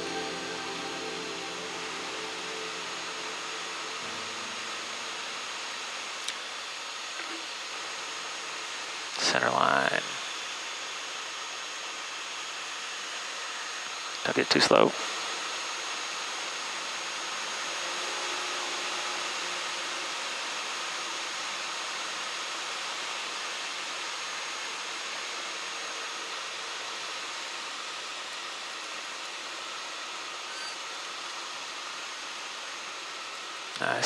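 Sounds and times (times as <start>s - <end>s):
airplane cockpit hiss: 0.0s - 5.8s, 33.8s - 34.0s.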